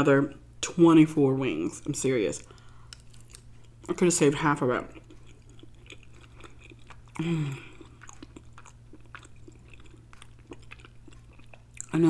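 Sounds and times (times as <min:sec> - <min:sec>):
wet chewing: 0:02.4 - 0:12.0
person humming: 0:07.2 - 0:07.7.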